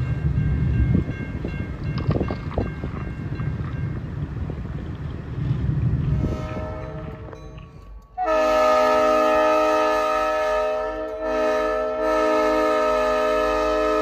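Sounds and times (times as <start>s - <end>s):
locomotive air horn: 6.2s - 7.4s, 8.2s - 14.0s.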